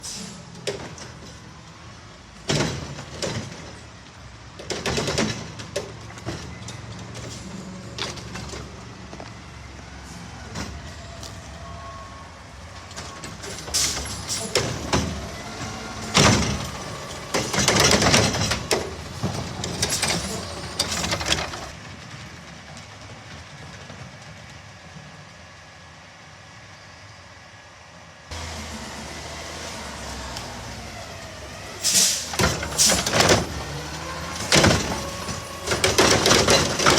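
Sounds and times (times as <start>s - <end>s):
garbage truck running: 0.0s - 36.9s
trash cans banging on hopper: 13.4s - 21.7s, 32.3s - 36.9s.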